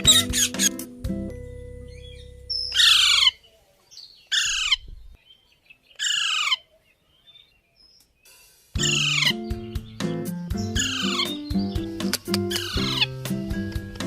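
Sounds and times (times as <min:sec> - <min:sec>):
parrot squawking: 0:00.0 - 0:00.9, 0:02.6 - 0:03.4, 0:04.3 - 0:04.8, 0:08.8 - 0:09.5, 0:10.6 - 0:11.4, 0:12.0 - 0:13.2.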